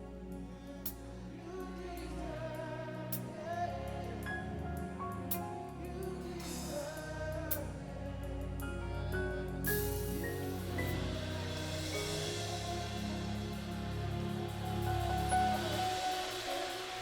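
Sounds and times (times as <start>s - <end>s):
people singing: 0.4s - 17.0s
gospel band playing: 1.5s - 17.0s.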